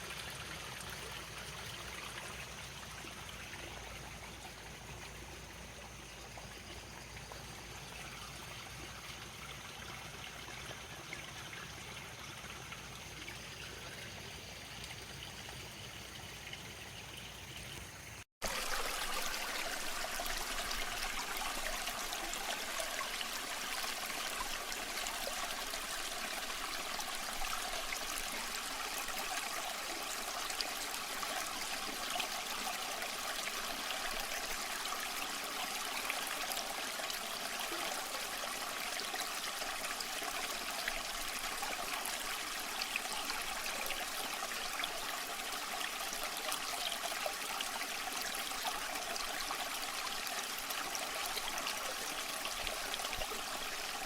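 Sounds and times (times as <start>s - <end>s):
stream of water trickling: 0.0s - 54.0s.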